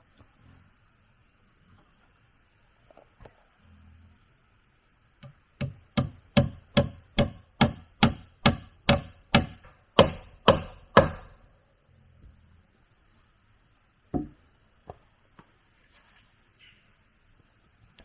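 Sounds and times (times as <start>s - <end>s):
tool chopping wood: 5.6s - 11.4s.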